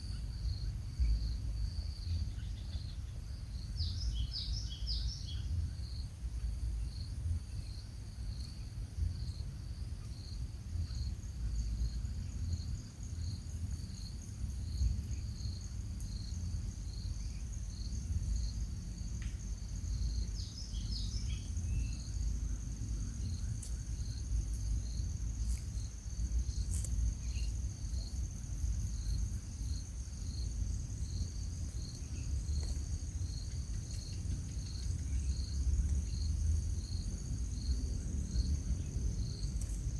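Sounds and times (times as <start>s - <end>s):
pulsing insect trill: 10.2s - 39.9s.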